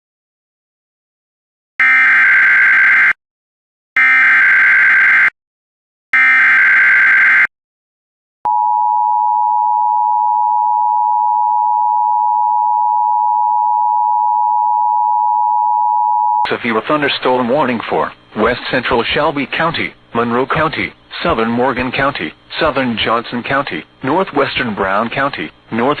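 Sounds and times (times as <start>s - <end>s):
steady alarm tone: 1.8s - 3.2s, 4.0s - 5.3s, 6.2s - 7.5s.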